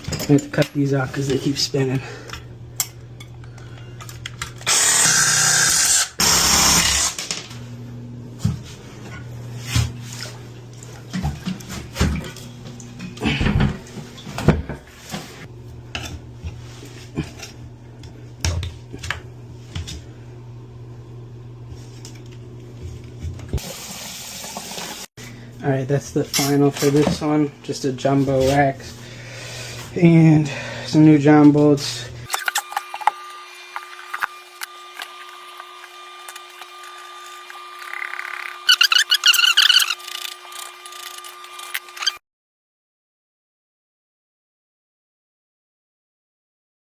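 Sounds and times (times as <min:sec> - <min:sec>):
power cutting tool running: 0:04.6 - 0:07.2, 0:32.3 - 0:42.2.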